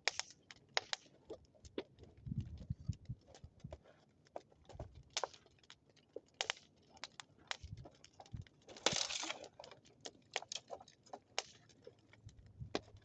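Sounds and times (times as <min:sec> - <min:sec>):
bonfire crackling and popping: 0:00.0 - 0:13.0.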